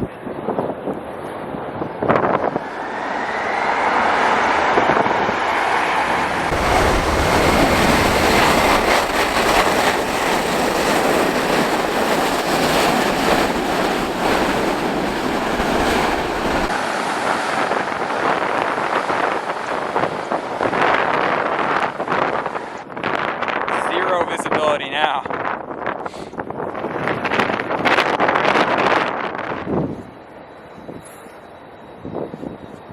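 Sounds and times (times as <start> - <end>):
wind buffeting microphone: 0.0 - 31.1, 31.9 - 32.9
jet engine noise: 0.0 - 32.9
faint whine: 0.9 - 19.9, 29.9 - 32.9.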